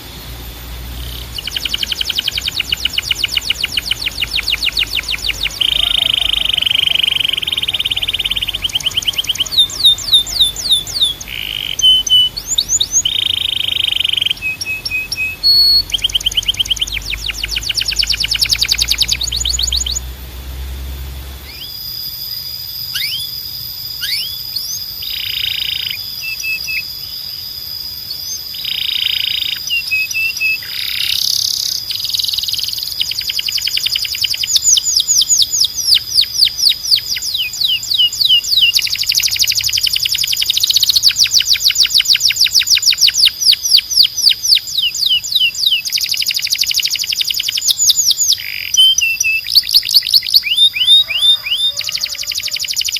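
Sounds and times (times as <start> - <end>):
canary singing trills: 0.0 - 20.1, 20.8 - 52.9
low hum: 0.0 - 25.2.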